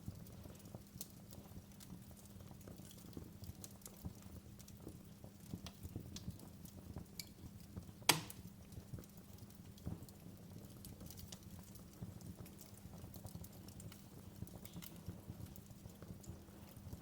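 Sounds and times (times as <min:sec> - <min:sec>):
low rumble of fire: 0:00.0 - 0:17.0
wood fire crackling: 0:00.0 - 0:17.0
loud pop from fire: 0:08.0 - 0:08.5.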